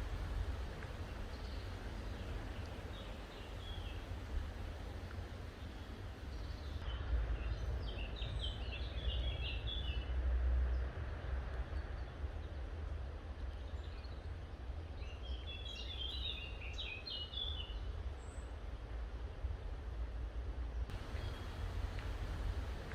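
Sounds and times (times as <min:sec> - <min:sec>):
songbird chirping: 0:00.0 - 0:10.0, 0:20.9 - 0:22.9
low rumble: 0:20.9 - 0:22.9.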